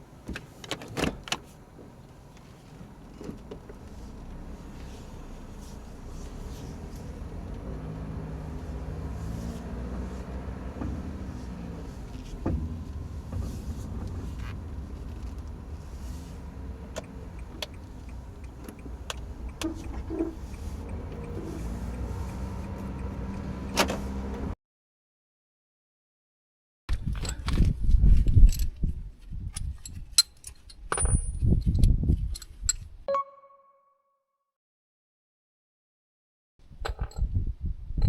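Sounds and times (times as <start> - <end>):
car road and cabin rumble: 0.0 - 24.6
suspension knocking: 10.0 - 23.8.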